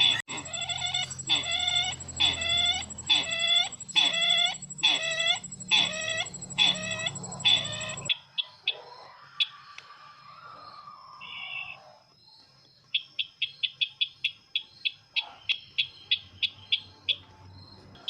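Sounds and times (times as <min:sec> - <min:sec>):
faint bird chirps: 0:00.0 - 0:08.1
recorded bird call playback: 0:00.0 - 0:18.0.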